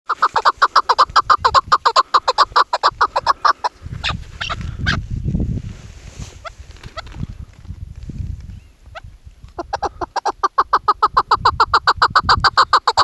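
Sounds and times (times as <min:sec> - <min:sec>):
partridge clucking calls: 0:00.1 - 0:05.0, 0:08.9 - 0:13.0.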